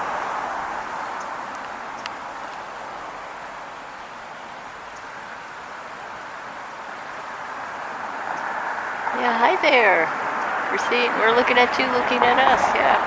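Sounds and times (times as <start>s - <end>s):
road traffic passing: 0.0s - 13.0s
vehicle approaching: 6.3s - 13.0s.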